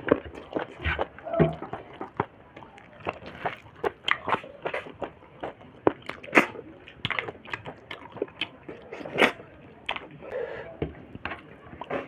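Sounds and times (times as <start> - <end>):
mouth clicks and lip smacks: 0.0 - 10.2
wet chewing: 0.0 - 12.0.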